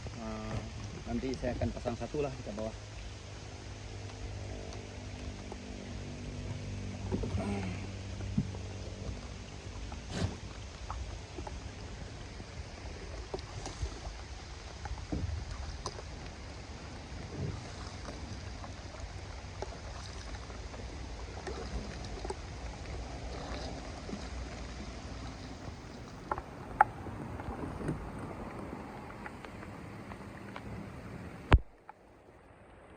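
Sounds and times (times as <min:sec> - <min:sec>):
water lapping against hull: 0:00.0 - 0:32.9
wind on microphone: 0:08.2 - 0:19.1, 0:21.5 - 0:31.7
light knocks on boat: 0:25.6 - 0:31.8.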